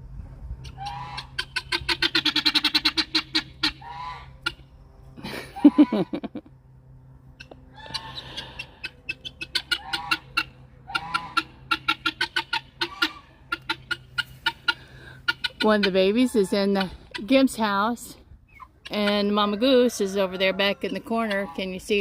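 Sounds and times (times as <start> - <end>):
farm bird harsh calls: 0.6 - 6.1, 7.2 - 22.0
lower bird call: 7.4 - 11.4.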